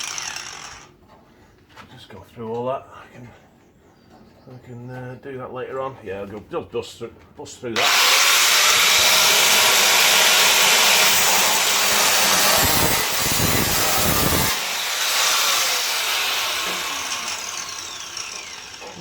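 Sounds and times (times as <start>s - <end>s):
cutting disc grinding metal: 0.0s - 0.9s, 7.8s - 19.0s
power tool motor whine: 0.0s - 0.9s, 7.8s - 19.0s.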